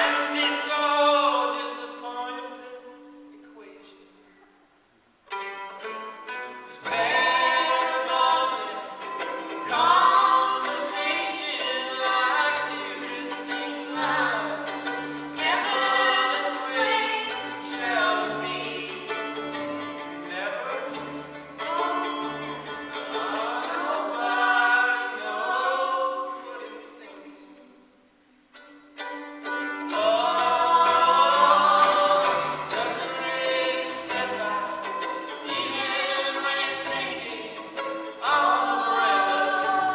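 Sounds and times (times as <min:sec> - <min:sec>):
bowed violin sliding notes: 0:05.3 - 0:27.4, 0:28.5 - 0:39.9.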